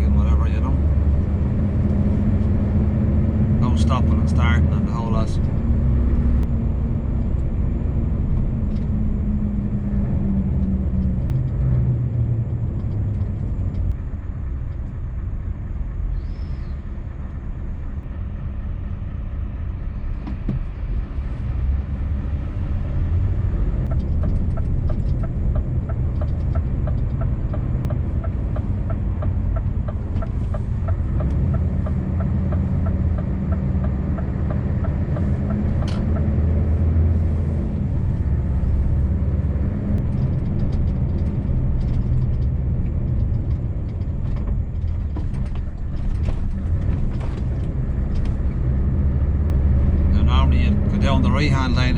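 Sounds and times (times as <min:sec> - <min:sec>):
truck engine humming from cab: 0:00.0 - 0:51.9
regular ticking: 0:23.8 - 0:36.4.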